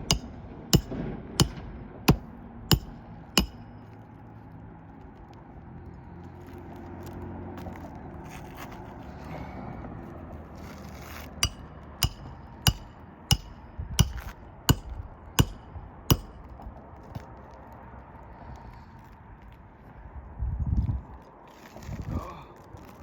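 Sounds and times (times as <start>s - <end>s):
hammer striking nails: 0.0s - 3.8s, 11.4s - 16.5s.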